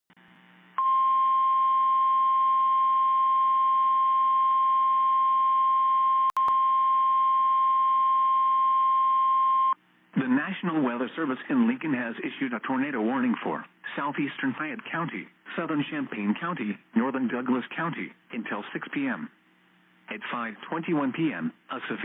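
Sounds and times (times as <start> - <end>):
faint radio hiss: 0.2 - 0.8, 9.8 - 22.0.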